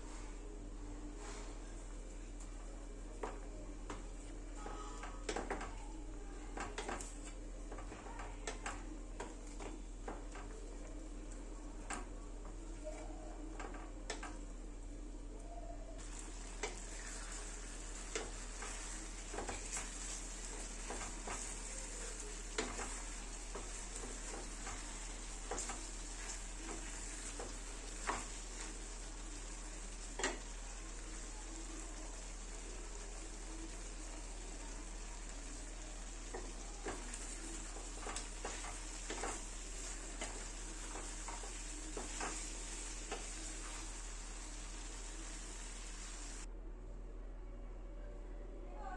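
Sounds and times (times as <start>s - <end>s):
chicken sizzling in a pan: 16.0s - 46.5s
spatula scraping a pan: 16.2s - 29.1s, 36.3s - 46.4s.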